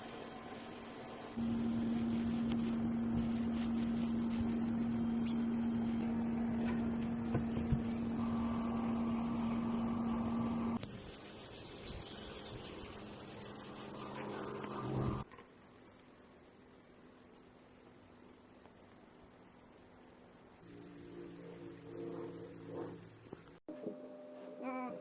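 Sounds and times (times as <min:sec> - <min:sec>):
high steady whine: 0:00.0 - 0:11.0
motor humming: 0:01.4 - 0:10.8.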